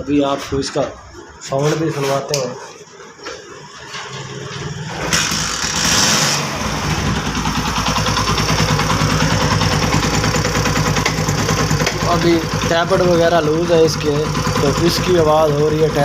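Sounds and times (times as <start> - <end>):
motorcycle engine starting and idling: 3.4 - 16.0.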